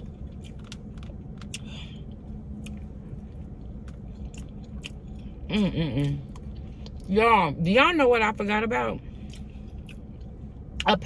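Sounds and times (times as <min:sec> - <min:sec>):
person chewing food: 0:00.0 - 0:07.1, 0:09.2 - 0:10.9.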